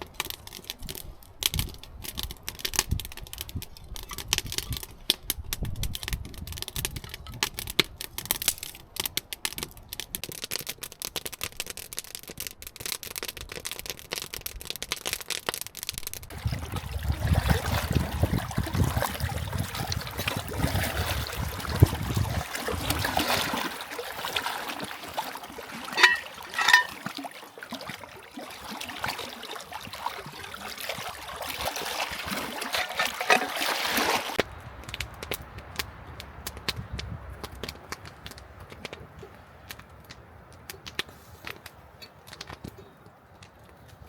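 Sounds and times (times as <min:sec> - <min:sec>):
dense crackling clicks: 0:00.0 - 0:16.3
water trickling and splashing: 0:15.1 - 0:40.2.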